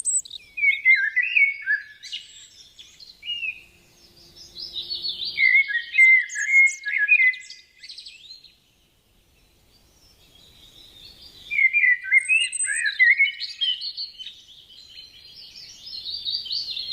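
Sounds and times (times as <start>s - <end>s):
songbird warbling: 0.0s - 3.6s, 4.4s - 8.0s, 11.2s - 14.4s.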